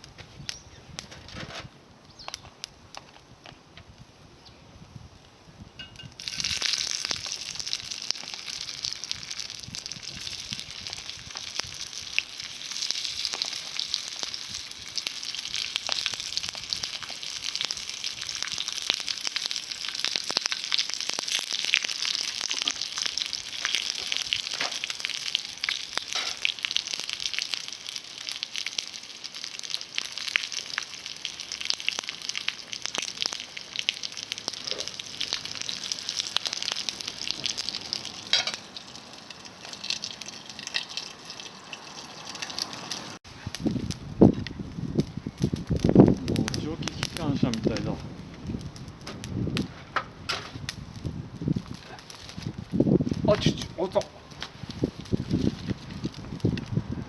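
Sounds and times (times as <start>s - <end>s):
twigs crackling in fire: 0.0s - 4.2s, 4.8s - 57.0s
food sizzling in a pan: 6.2s - 43.2s.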